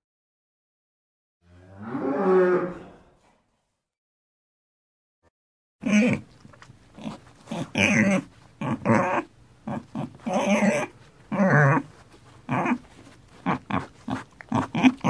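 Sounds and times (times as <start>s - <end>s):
pig grunting: 5.8s - 6.4s, 7.0s - 11.9s, 12.5s - 15.0s.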